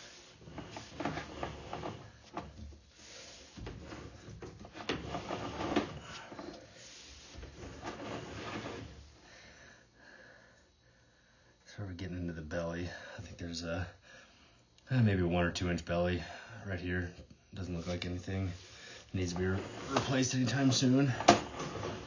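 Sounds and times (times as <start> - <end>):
camera scraping inside metal pipe: 0.0 - 2.6, 3.6 - 9.1, 17.7 - 22.0.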